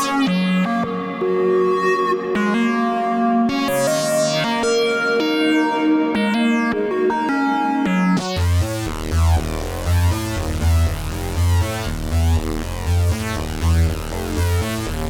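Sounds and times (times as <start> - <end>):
synthesizer sequenced pattern: 0.0 - 8.9
deep synth bass pulses: 8.4 - 15.0.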